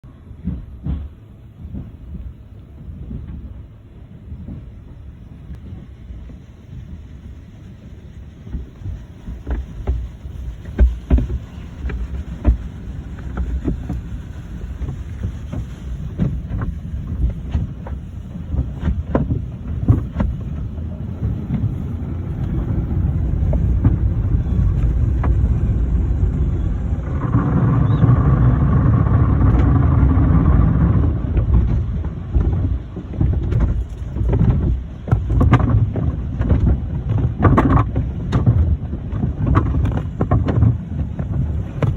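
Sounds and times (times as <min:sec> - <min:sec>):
steady whine: 0:00.0 - 0:32.8
water spray: 0:05.9 - 0:27.5
scrubbing equipment drumming on car: 0:08.4 - 0:41.9.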